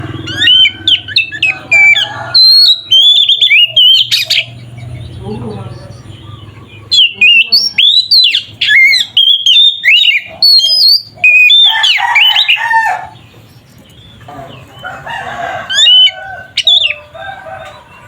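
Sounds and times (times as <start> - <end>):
bird singing whistled phrases: 0.0 - 12.6.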